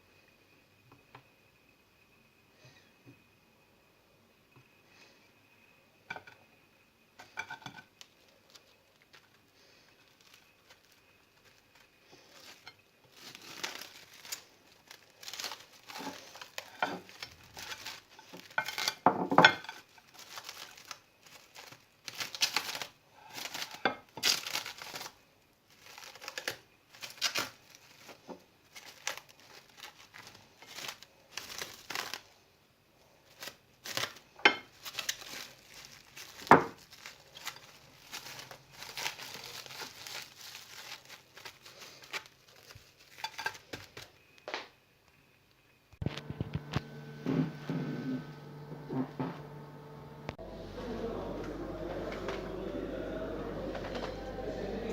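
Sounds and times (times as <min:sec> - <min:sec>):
food packaging crinkling: 0:07.2 - 0:32.4, 0:33.0 - 0:44.4.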